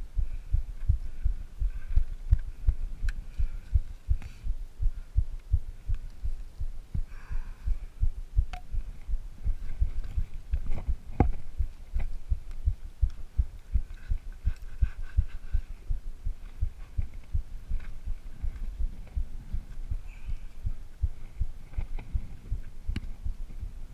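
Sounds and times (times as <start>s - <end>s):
footsteps on rough dry ground: 8.8s - 20.0s.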